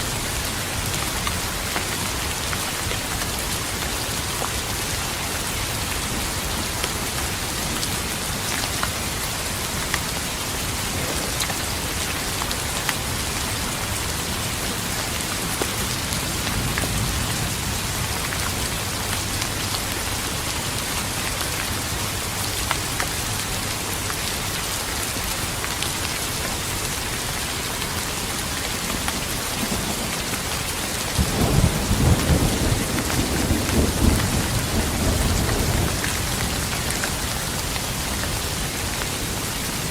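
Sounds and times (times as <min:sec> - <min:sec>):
steady rain: 0:00.0 - 0:39.9
low rumble of thunder: 0:16.1 - 0:19.4, 0:31.2 - 0:37.6.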